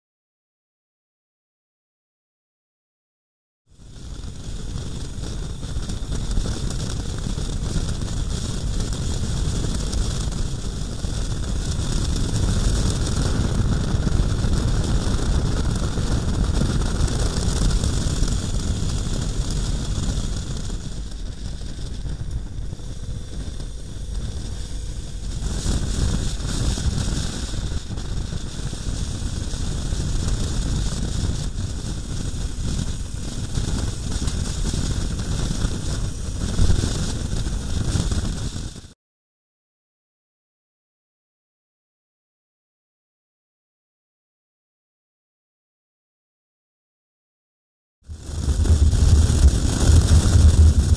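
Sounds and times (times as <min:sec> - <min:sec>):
wind rushing over microphone: 0:03.7 - 0:38.9, 0:48.1 - 0:50.9
motorcycle engine rumble: 0:20.6 - 0:33.2.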